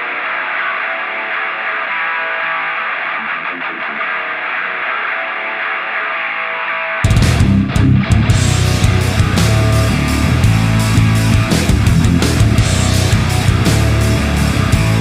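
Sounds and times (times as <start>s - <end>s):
distorted electric guitar chords: 0.0s - 15.0s.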